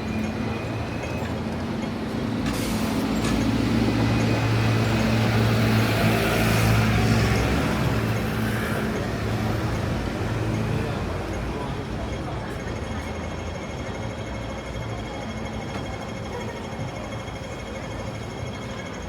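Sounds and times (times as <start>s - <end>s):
heavy vehicle engine hum: 0.0s - 19.0s
air brake hiss: 2.5s - 3.1s.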